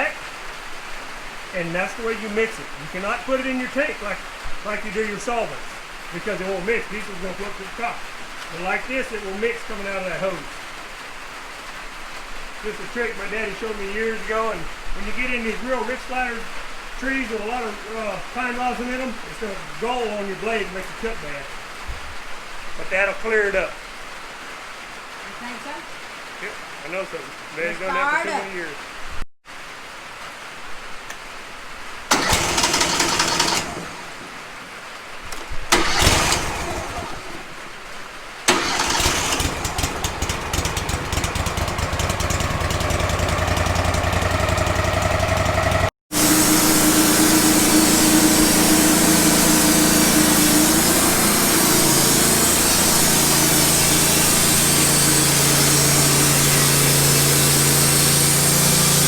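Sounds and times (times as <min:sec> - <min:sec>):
sawmill engine running: 0:32.1 - 0:34.6, 0:35.7 - 0:37.6, 0:38.5 - 0:59.0
band blade sawing log: 0:46.1 - 0:59.0.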